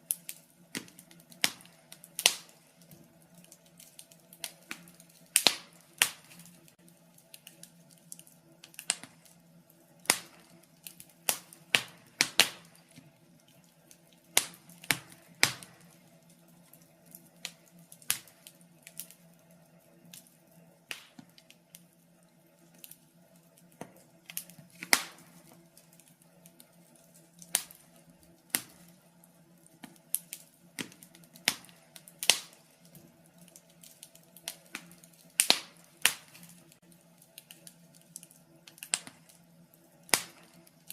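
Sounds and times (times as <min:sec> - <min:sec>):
faint steady hum: 0:00.0 - 0:40.9
wood fire crackling: 0:00.0 - 0:40.9.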